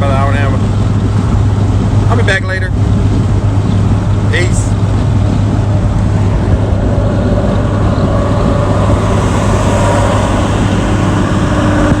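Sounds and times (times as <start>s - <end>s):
vehicle road and engine noise: 0.0s - 12.0s
low hum: 2.7s - 12.0s.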